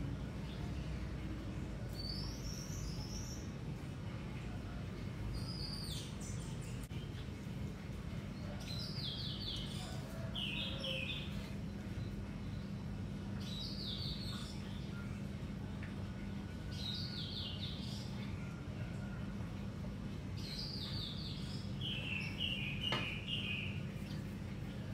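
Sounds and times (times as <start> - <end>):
songbird singing: 0.1 - 3.7, 5.2 - 7.4, 8.1 - 19.2, 20.2 - 24.3
steady low hum: 6.0 - 24.9.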